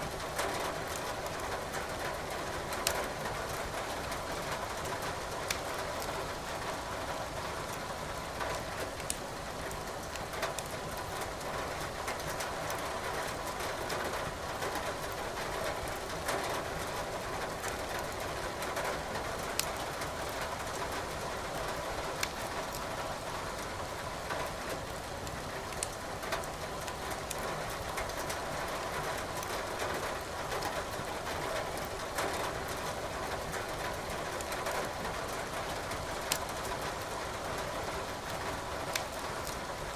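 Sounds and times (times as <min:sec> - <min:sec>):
firewood crackling in fireplace: 0:05.4 - 0:06.1, 0:08.9 - 0:11.4, 0:19.5 - 0:20.8, 0:21.6 - 0:22.8, 0:25.3 - 0:28.3, 0:30.4 - 0:32.8, 0:36.2 - 0:37.1, 0:38.2 - 0:39.8.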